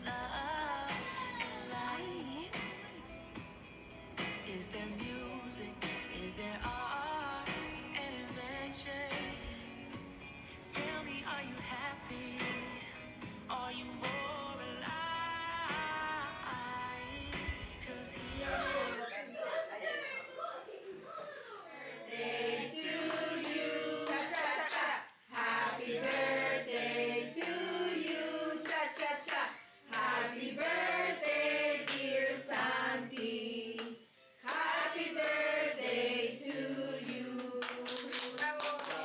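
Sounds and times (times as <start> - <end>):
voices singing in harmony: 0.0 - 3.3, 4.2 - 19.0, 22.0 - 38.0
soft backing music: 0.0 - 19.0.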